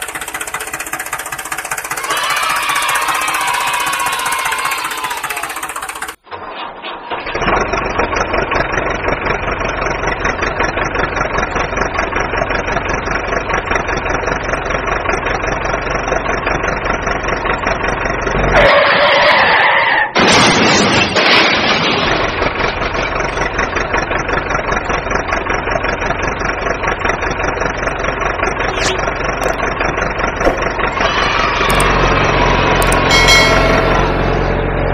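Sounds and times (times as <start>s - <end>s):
vehicle engine running: 0.0s - 6.3s, 7.3s - 18.8s, 22.3s - 34.9s.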